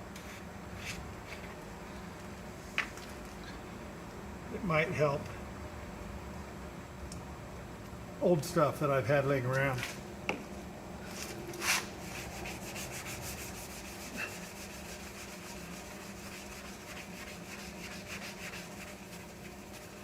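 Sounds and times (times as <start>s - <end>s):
hand scrubbing paste on panel: 11.1s - 20.0s.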